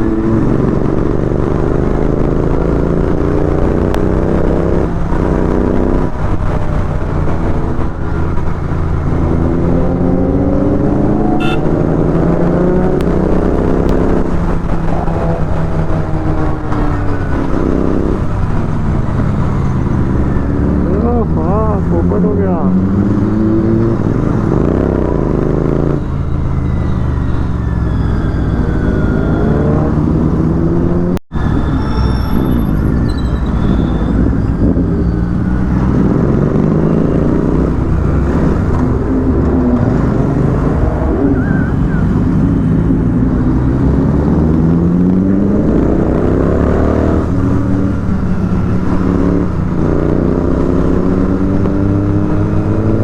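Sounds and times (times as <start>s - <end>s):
heavy wind rush: 28.6s - 53.0s.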